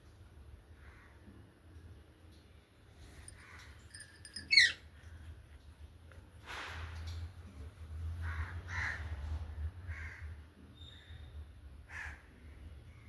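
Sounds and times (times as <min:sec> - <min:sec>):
parrot harsh calls: 0:03.9 - 0:04.8.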